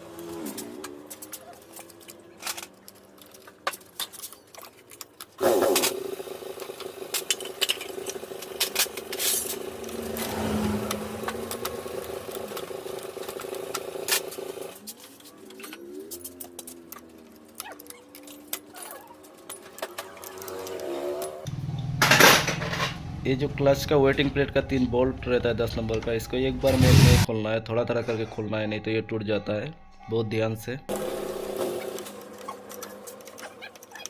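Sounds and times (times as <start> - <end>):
hand tools clinking on metal: 10.9 - 21.4
steady motor with held tone: 30.9 - 33.2.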